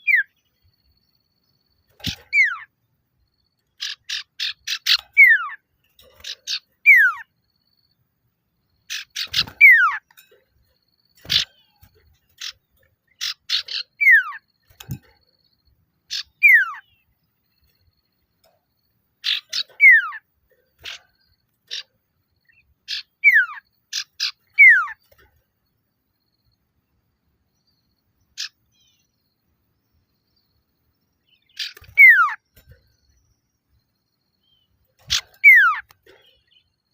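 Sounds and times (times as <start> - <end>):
bird chattering and whistling: 0.0 - 0.4, 1.9 - 2.7, 3.6 - 7.4, 8.9 - 10.4, 11.2 - 15.1, 16.1 - 17.1, 19.2 - 25.1, 28.3 - 29.1, 31.2 - 32.9, 34.4 - 36.7.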